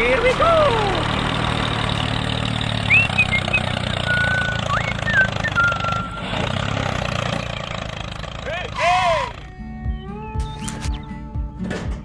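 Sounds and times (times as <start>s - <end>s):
diesel tractor engine chugging: 0.0s - 10.1s.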